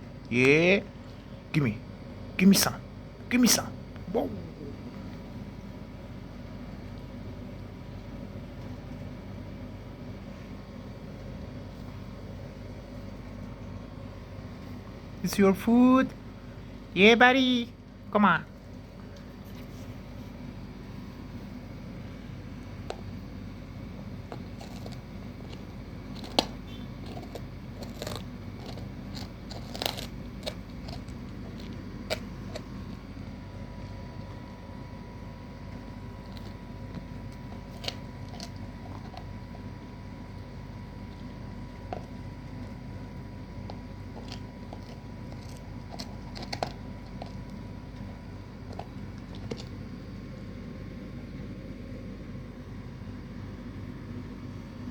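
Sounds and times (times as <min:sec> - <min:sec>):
dog gnawing a bone: 0:20.4 - 0:52.2.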